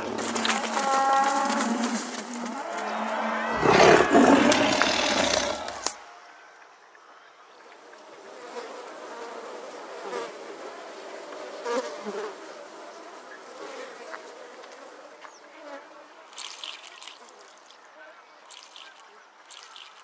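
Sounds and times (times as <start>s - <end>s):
flies buzzing: 0.0s - 5.9s, 18.5s - 20.0s.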